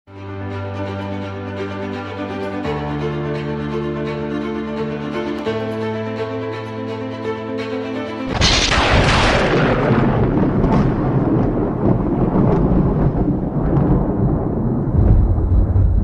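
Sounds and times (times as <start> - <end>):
held string music: 0.1 - 11.4
thunderclap with long rumble: 8.3 - 16.0.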